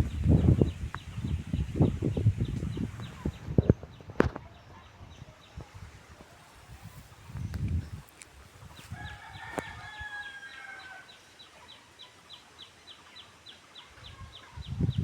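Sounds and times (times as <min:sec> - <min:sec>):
faint rooster crowing: 0:08.8 - 0:11.2.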